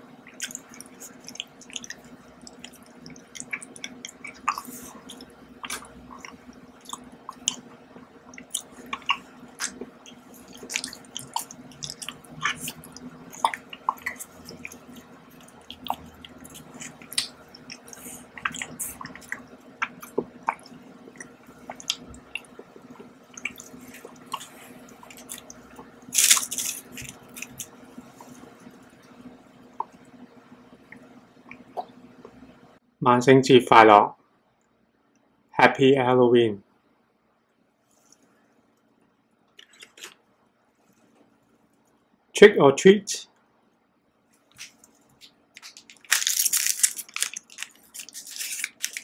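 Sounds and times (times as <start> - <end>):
chewing and wet mouth sounds: 0.2 - 30.2, 39.6 - 40.2, 44.5 - 49.0.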